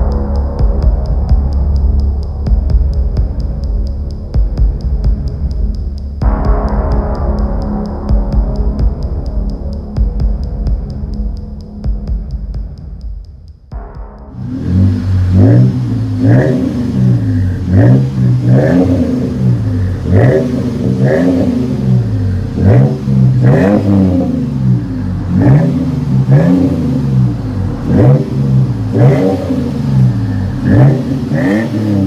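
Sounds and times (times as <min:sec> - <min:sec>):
truck engine revving: 0:14.0 - 0:32.0.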